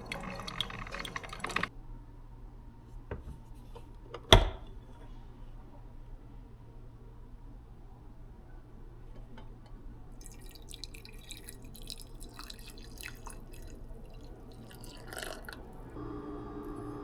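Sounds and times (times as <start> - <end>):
water dripping and splashing: 0.0 - 1.7, 10.2 - 15.6.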